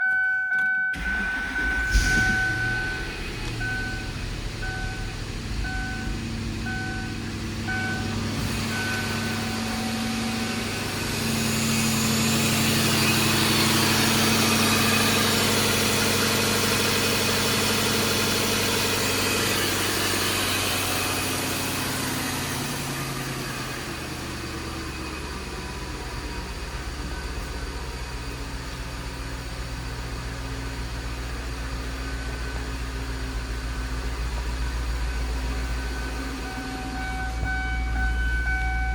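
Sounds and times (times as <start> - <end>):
car warning chime beeping: 0.0 - 10.6, 35.7 - 38.9
car engine starting and idling: 0.0 - 38.9.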